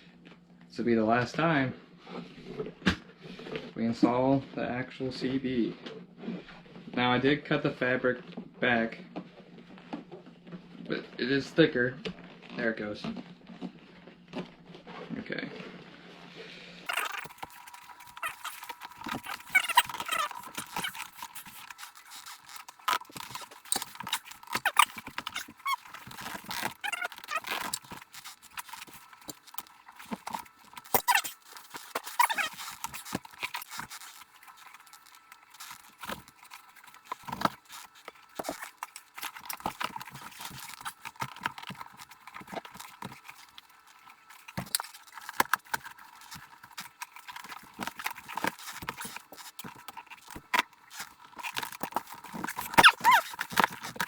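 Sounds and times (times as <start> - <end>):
clicks knocks and scrapes of handling: 16.9 - 54.0.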